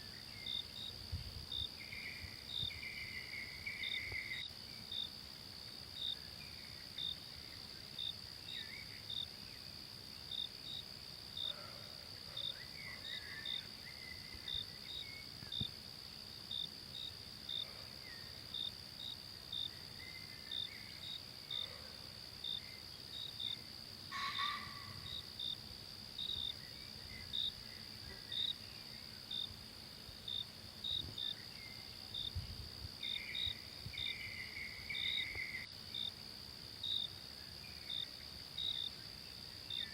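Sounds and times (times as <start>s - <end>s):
cricket chirping: 0.0s - 39.9s
high-pitched insect drone: 22.4s - 25.6s.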